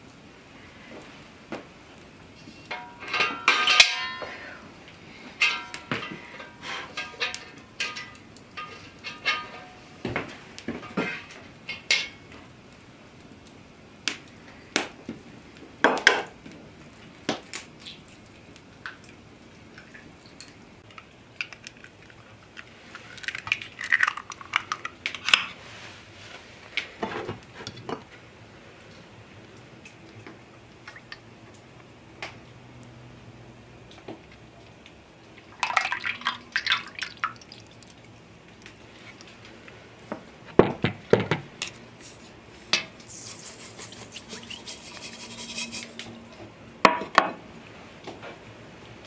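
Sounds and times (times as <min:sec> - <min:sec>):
kitchen utensils and dishes clinking: 0:02.4 - 0:04.4, 0:05.4 - 0:09.8.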